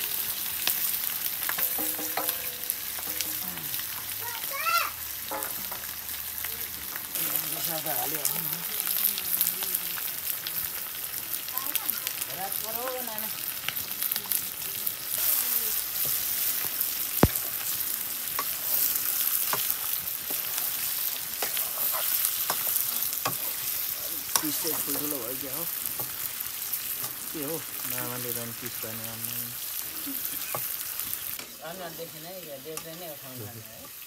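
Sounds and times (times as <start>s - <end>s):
chicken sizzling in a pan: 0.0s - 34.0s
metal spatula scraping a pan: 1.4s - 3.9s, 5.3s - 5.9s, 18.4s - 25.0s.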